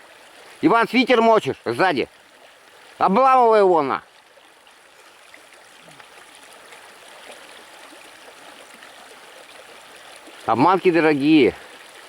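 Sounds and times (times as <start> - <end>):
river water rushing: 0.0 - 12.0
small water ticks: 4.0 - 12.0.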